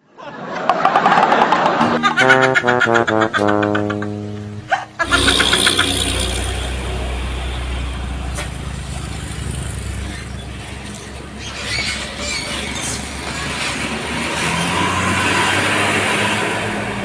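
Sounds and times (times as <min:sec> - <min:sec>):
music clip: 0:01.7 - 0:08.3
vehicle engine running: 0:04.2 - 0:14.0.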